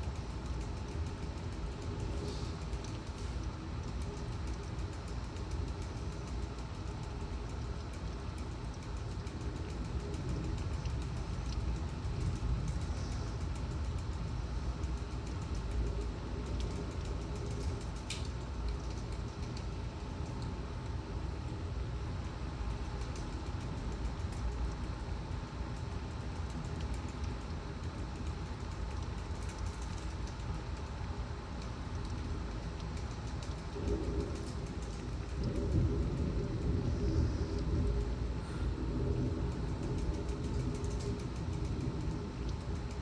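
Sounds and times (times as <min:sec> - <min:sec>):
strong wind gusts: 0:33.6 - 0:43.0.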